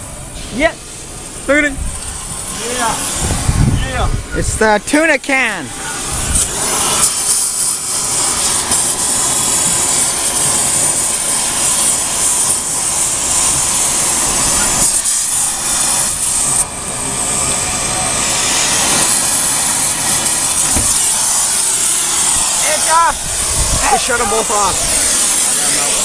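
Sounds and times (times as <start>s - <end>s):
loud raspy car engine: 0.0s - 26.0s.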